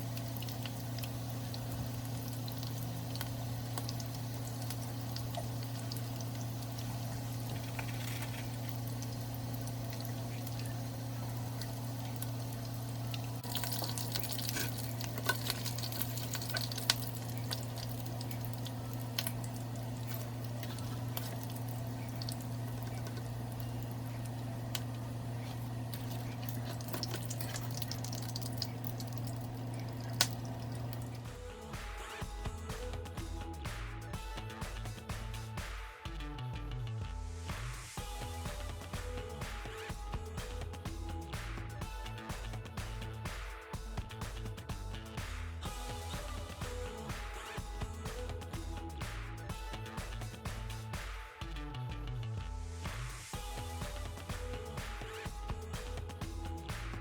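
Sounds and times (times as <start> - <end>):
oil popping: 0.0 - 31.2
food sizzling in hot oil: 0.0 - 31.3
constant low hum: 0.0 - 57.0.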